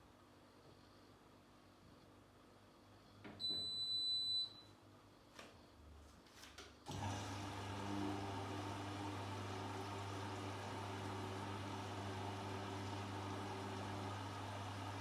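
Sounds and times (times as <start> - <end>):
washing machine beep: 3.4 - 4.7
washing machine running: 6.9 - 15.0.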